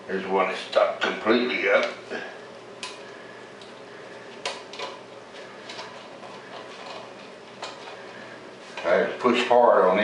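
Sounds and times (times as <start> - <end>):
wire hanger scraping porcelain: 4.7 - 8.9.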